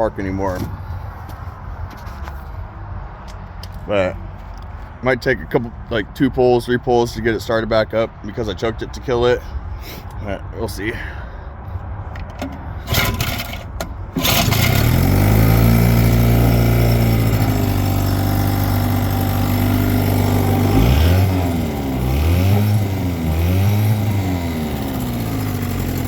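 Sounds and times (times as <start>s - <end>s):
outboard motor running and revving: 12.9s - 13.6s, 14.2s - 26.0s.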